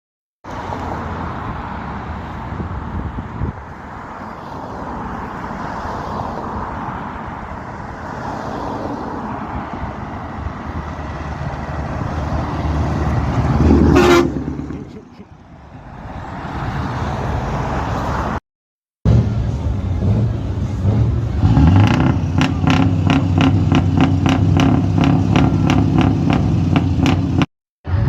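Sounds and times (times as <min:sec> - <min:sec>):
road and traffic noise: 0:00.4 - 0:18.4, 0:19.0 - 0:28.0
truck engine running: 0:19.1 - 0:28.0.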